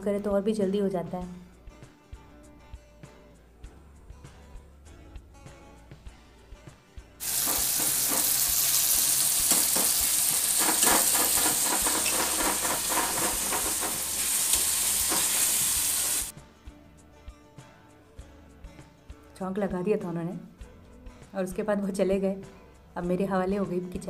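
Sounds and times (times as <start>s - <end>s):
ladle scraping against pan: 7.2s - 8.8s, 9.5s - 16.3s
vegetables sizzling in hot oil: 7.2s - 16.3s.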